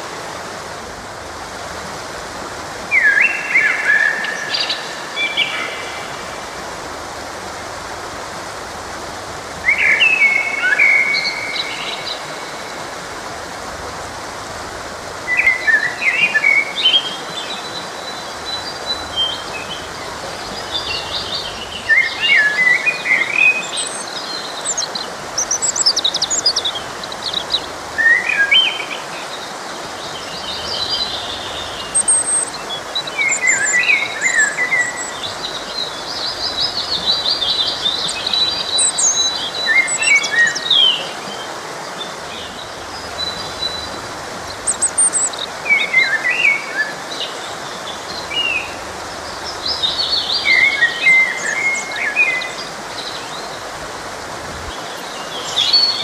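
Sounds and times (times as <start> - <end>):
stream rushing: 0.0 - 56.0
birds chirping and singing: 42.4 - 46.6.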